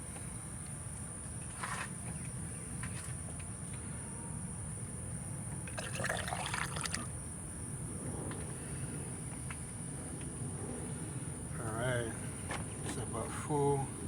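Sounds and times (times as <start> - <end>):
fluid pouring through funnel: 5.7 - 7.1.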